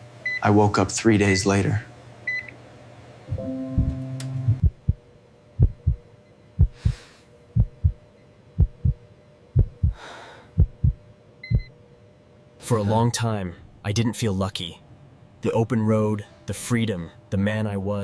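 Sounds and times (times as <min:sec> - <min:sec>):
heartbeat thumps: 0:03.3 - 0:09.0, 0:09.6 - 0:11.7
soft breaths: 0:06.6 - 0:07.4, 0:09.8 - 0:10.9.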